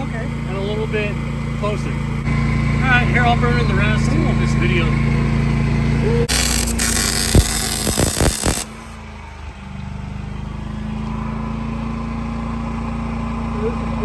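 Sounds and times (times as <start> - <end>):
low machine hum: 0.0 - 14.0
welding arc crackling: 6.3 - 9.0.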